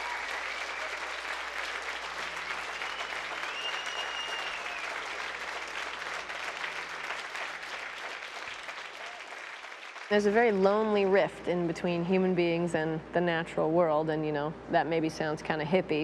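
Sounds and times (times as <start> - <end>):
whistles from audience: 0.0 - 1.1, 2.6 - 5.1
audience applauding: 0.0 - 10.6.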